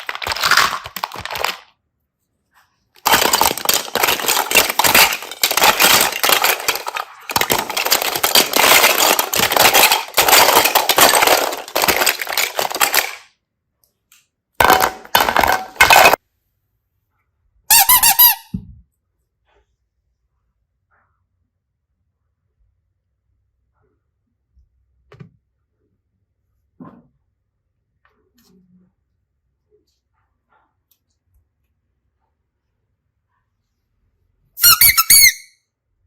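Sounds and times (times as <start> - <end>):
slime crackling and squeaking: 0.0 - 1.7, 3.0 - 13.2
pitched squeak: 17.7 - 18.5, 34.6 - 35.5.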